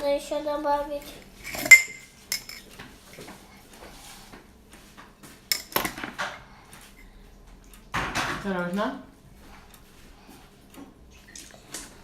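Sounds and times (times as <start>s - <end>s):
utensils clinking against dishes: 1.4s - 3.2s, 5.5s - 6.3s.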